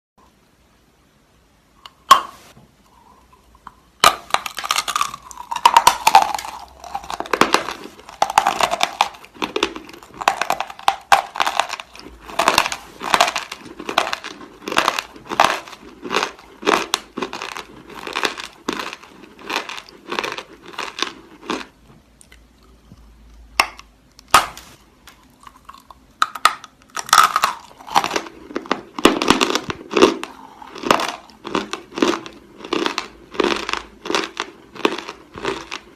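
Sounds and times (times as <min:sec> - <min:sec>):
chalk crunching being chewed: 0:04.1 - 0:23.4, 0:27.0 - 0:35.9.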